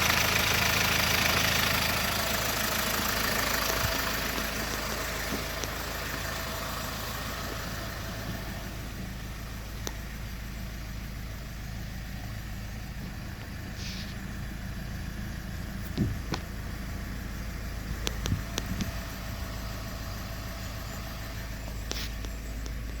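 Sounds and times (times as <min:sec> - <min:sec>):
car engine idling: 0:00.0 - 0:23.0
light clicks and low knocks: 0:17.9 - 0:19.1.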